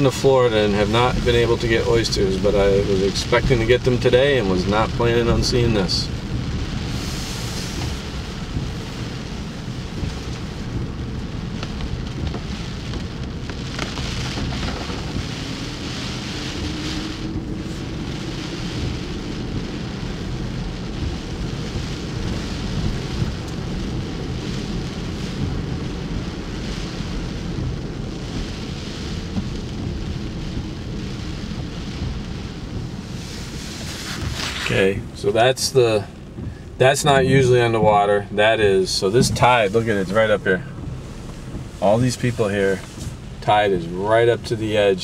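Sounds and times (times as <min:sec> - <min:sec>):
wind and rain rushing: 0:00.0 - 0:45.0
wind buffeting microphone: 0:38.7 - 0:43.5.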